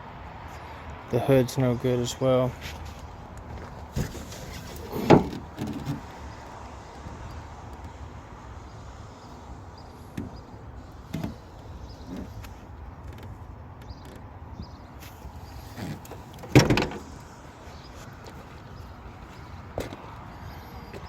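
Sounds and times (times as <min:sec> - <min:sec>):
faint knocks and clunks: 0:03.4 - 0:06.1.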